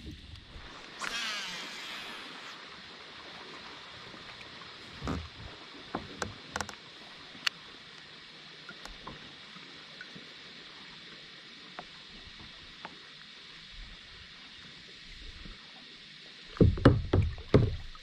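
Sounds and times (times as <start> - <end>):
water hissing: 0.0 - 6.0
gear knocking against hull: 16.6 - 18.0.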